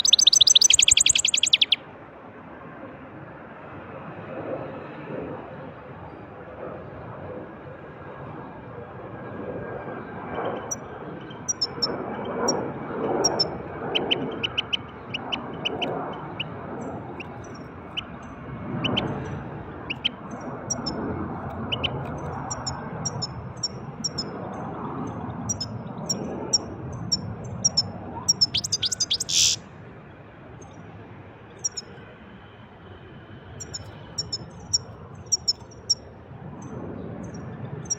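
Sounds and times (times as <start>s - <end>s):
goldfinch chirps and trills: 0.0s - 1.8s, 13.2s - 16.5s, 27.6s - 29.6s
loud harsh bird note: 0.0s - 1.8s, 28.3s - 29.6s.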